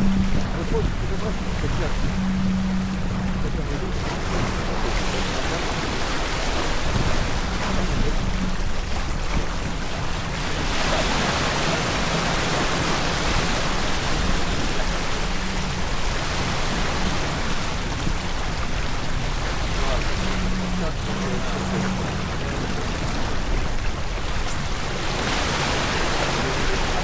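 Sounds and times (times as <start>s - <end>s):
water rushing past boat: 0.0s - 27.0s.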